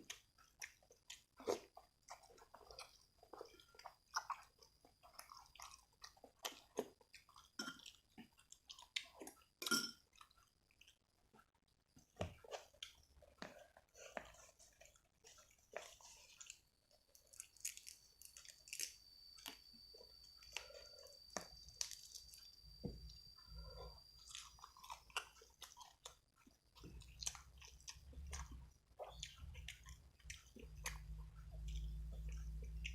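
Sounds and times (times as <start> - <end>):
person chewing and crunching: 0.0 - 32.9
faint high whine: 15.4 - 28.9.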